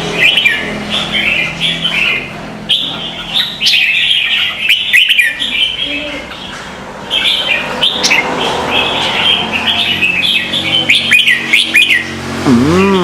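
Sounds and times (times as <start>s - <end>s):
low rising and falling bird call: 0.0s - 13.0s
small birds chirping: 0.0s - 13.0s.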